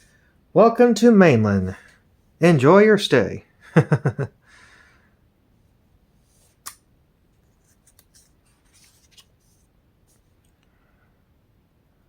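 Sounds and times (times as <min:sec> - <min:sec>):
pages rustling: 0:06.2 - 0:10.5
paper snap: 0:06.5 - 0:06.9.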